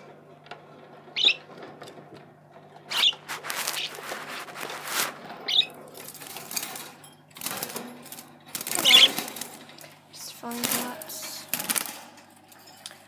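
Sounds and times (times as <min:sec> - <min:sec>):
budgerigars chirping: 0:01.2 - 0:01.5, 0:02.9 - 0:04.0, 0:05.4 - 0:05.8, 0:08.7 - 0:09.3.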